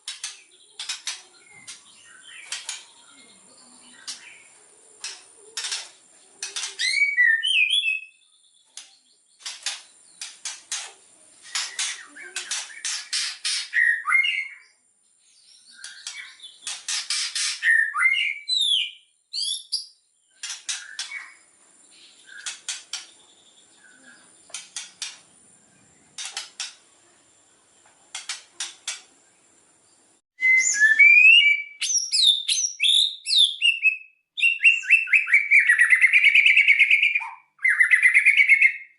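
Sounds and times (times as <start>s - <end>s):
bird rattling and whistling song: 5.0s - 8.1s, 8.7s - 14.5s, 15.7s - 21.4s, 22.1s - 23.3s, 26.2s - 26.8s.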